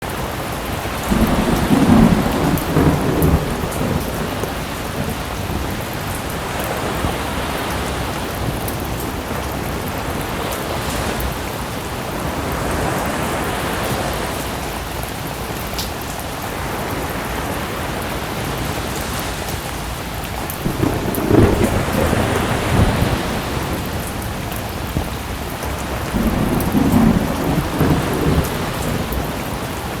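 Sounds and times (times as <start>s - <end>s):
steady rain: 0.0s - 30.0s
thunder rumbling: 0.6s - 14.1s, 20.3s - 30.0s
sea waves washing in: 0.6s - 14.8s, 16.4s - 30.0s.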